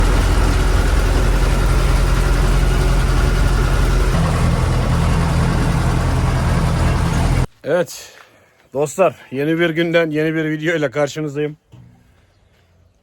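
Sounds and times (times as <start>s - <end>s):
feed mill mechanical hum: 0.0s - 7.5s.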